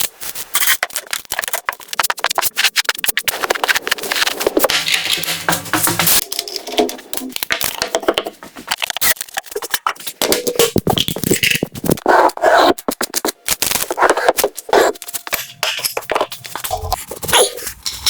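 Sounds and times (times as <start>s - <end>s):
rustling scrapes: 2.0s - 6.6s.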